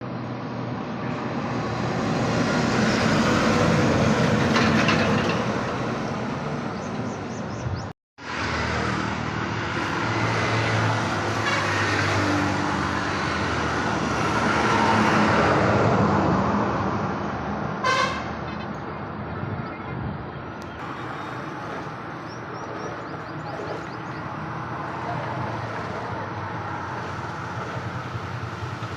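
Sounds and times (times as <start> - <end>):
vehicles passing close by: 0.0 - 28.9
short car horn toot: 17.8 - 18.3.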